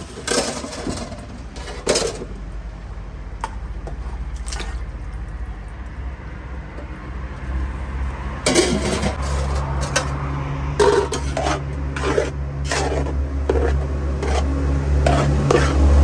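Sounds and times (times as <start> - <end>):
metal cookware clinking: 8.5 - 10.2, 10.8 - 14.4.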